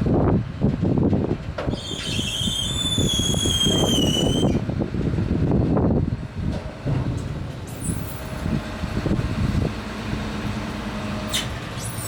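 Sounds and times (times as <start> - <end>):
diesel machinery rumbling: 0.0 - 12.0
high metallic squeal: 1.7 - 4.6
knocks and clatter: 6.4 - 7.7.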